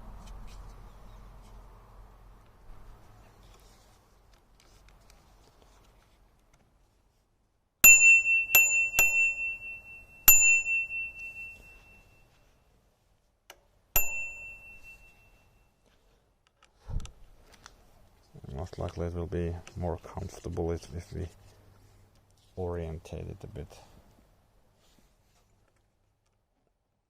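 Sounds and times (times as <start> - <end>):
bicycle bell dings: 7.8 - 12.3, 14.0 - 15.7.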